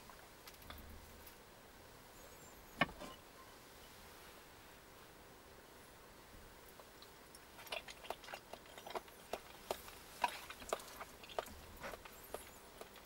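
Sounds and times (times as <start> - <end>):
person chewing food: 7.6 - 13.0.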